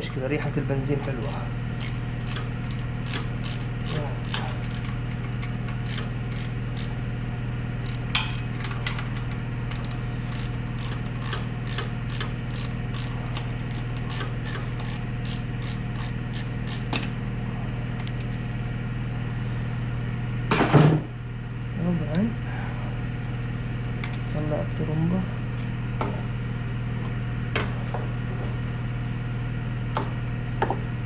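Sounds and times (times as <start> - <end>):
ratchet wrench clicking: 1.2 - 5.0, 5.8 - 7.0, 7.8 - 8.7, 9.7 - 17.0
metallic clatter: 9.7 - 16.9.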